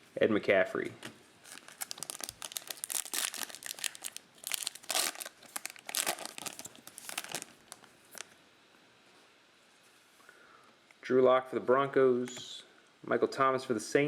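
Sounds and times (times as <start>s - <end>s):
plastic wrappers crinkling and tearing: 1.4s - 8.4s.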